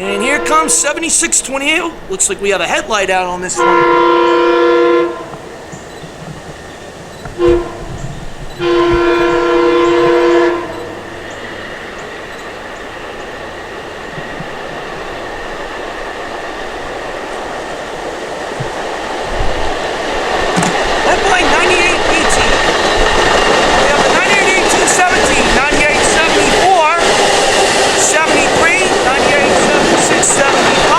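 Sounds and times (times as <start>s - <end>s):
train horn blasts: 0.0s - 1.5s, 3.5s - 5.7s, 7.2s - 12.1s
train wheels on rails: 0.0s - 30.9s.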